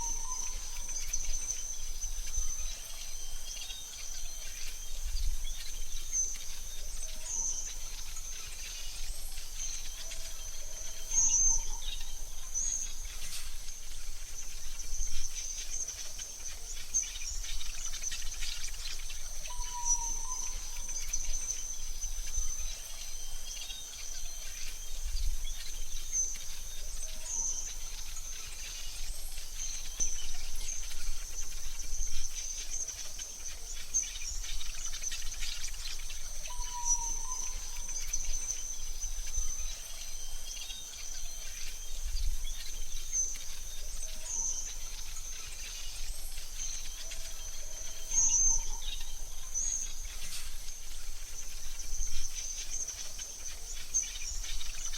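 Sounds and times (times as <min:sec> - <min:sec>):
bird chirps: 0:00.0 - 0:54.9
high-pitched insect drone: 0:16.4 - 0:54.9.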